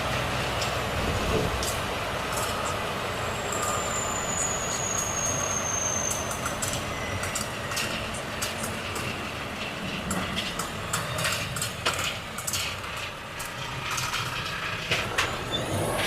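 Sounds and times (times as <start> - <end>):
road noise: 0.0 - 16.0
truck driving: 0.0 - 16.0
high brake squeal: 2.5 - 8.2, 15.2 - 16.0
cab rattles and clicks: 6.4 - 15.4.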